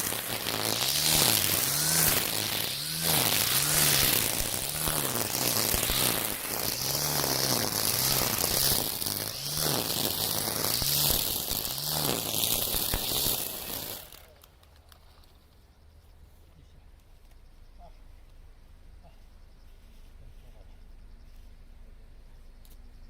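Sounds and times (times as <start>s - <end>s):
brush cutter cutting weeds: 0.0s - 14.6s.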